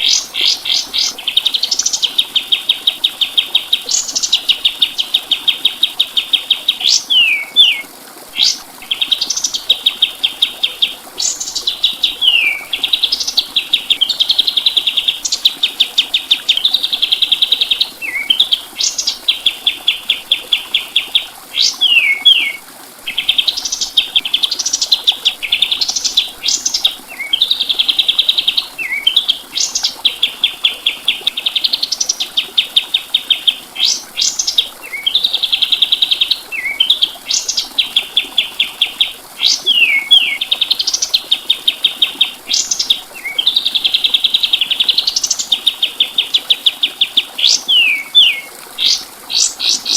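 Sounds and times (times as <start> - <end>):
songbird singing trills: 0.0 - 49.9.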